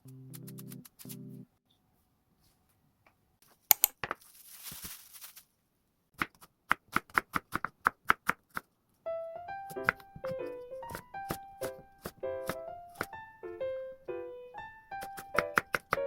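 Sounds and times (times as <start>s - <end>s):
rustle: 4.2s - 5.5s
background music: 9.1s - 16.0s.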